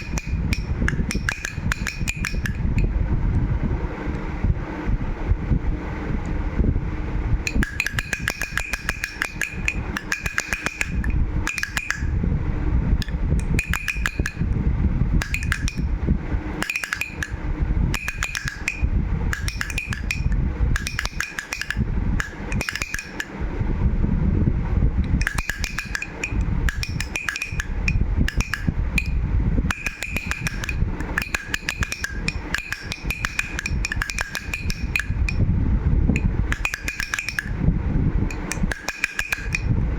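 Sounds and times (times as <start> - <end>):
toy rattle clattering: 0.0 - 2.9, 7.5 - 12.1, 13.0 - 14.5, 15.2 - 15.9, 16.6 - 23.4, 25.1 - 35.4, 36.2 - 37.6, 38.3 - 39.7
low rumble: 23.3 - 25.2, 35.0 - 36.6.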